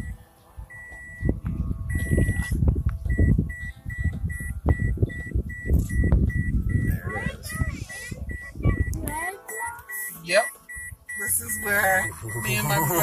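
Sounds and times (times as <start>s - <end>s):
low rumbling and handling noise: 0.0s - 9.1s
electronic warning chime beeping: 1.9s - 2.5s, 3.1s - 7.0s, 8.3s - 13.0s.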